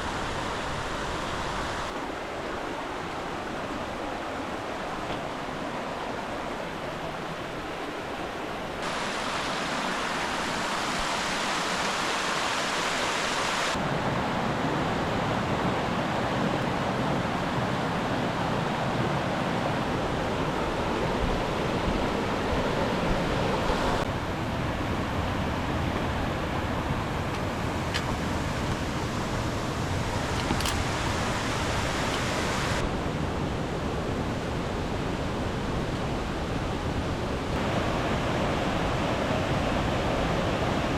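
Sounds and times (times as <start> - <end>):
flowing water rushing: 0.0 - 40.9.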